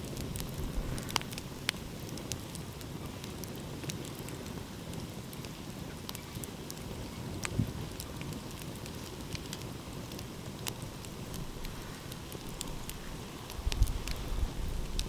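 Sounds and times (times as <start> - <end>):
sharp fire pops: 0.0 - 5.5
wood fire crackling: 0.0 - 15.0.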